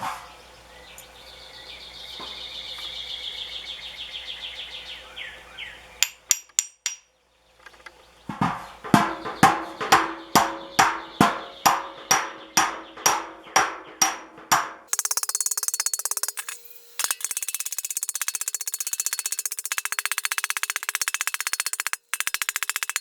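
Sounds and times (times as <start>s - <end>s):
hammer striking copper: 6.0s - 7.1s, 8.3s - 17.5s.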